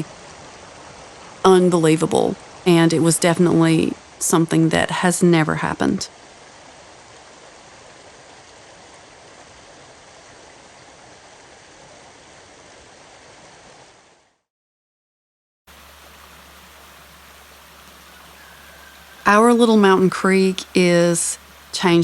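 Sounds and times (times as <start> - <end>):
creek rushing: 15.7 - 22.0
steady noise with low hum: 15.7 - 22.0.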